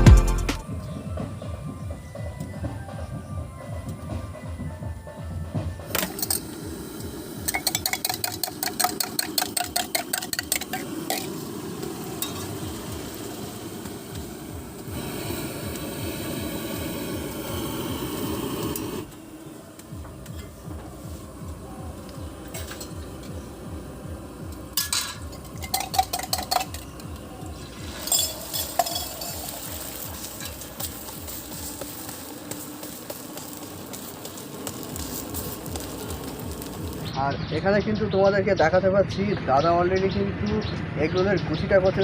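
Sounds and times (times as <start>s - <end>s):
low cooking rumble: 5.8s - 37.1s
metal utensil clinking on cooking vessel: 7.5s - 11.4s, 24.8s - 27.1s, 28.0s - 31.1s.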